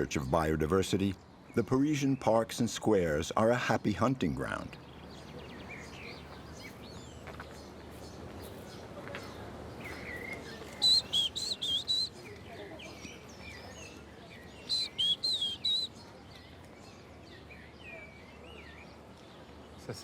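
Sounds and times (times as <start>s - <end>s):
faint bird chirps: 4.7s - 20.0s
bird singing high clear notes: 9.8s - 12.4s, 13.0s - 16.1s.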